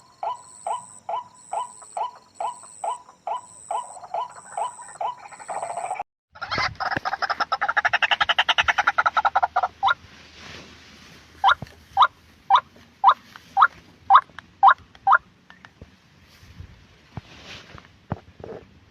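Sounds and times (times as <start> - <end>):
bird calling: 0.0 - 6.0.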